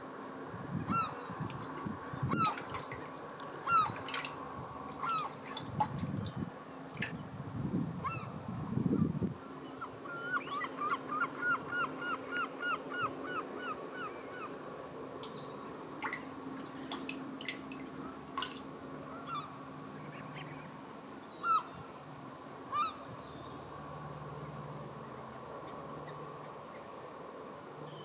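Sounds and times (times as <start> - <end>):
birds calling: 0.5 - 7.2, 7.9 - 8.4, 9.0 - 23.7.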